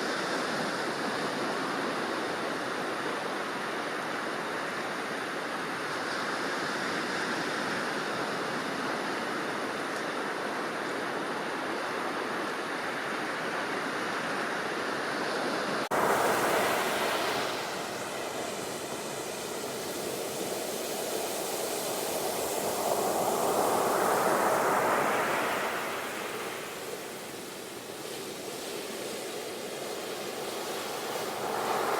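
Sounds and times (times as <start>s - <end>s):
waves surging and falling back: 0.1s - 31.9s
sea waves washing: 15.7s - 31.9s.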